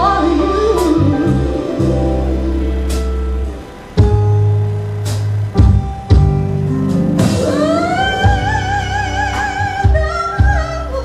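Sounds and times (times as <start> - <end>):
woman singing long note with vibrato: 0.0 - 2.9, 7.4 - 11.0
soul song with bass and drums: 0.0 - 11.0.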